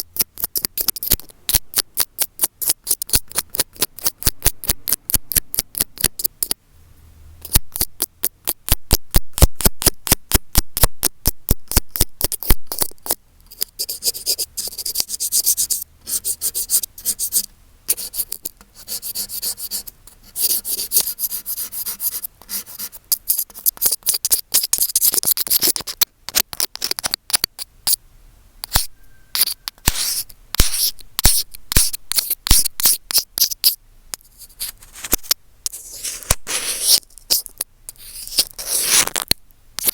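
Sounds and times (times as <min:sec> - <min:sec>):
scratching and rubbing on microphone: 0:34.3 - 0:39.9.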